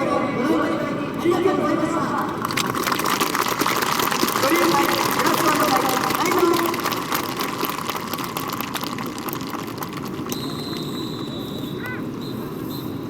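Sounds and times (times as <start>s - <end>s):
dense crackle: 2.4s - 11.7s.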